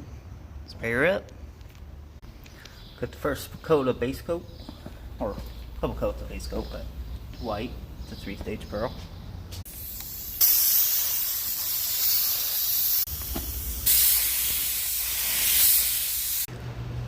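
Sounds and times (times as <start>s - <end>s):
paint spray gun hissing: 9.7s - 16.5s.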